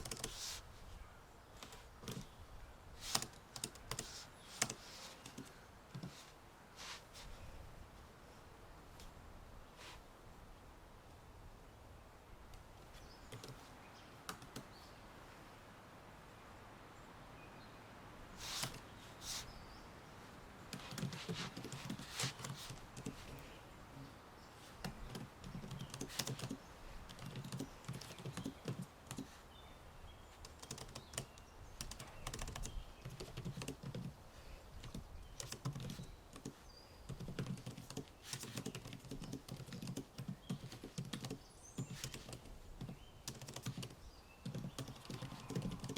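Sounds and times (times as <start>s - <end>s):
typing on a computer keyboard: 0.0s - 0.4s, 1.6s - 2.3s, 3.0s - 6.2s, 13.3s - 13.6s, 14.3s - 14.6s, 20.7s - 23.4s, 24.8s - 29.3s, 30.4s - 34.2s, 34.8s - 45.9s.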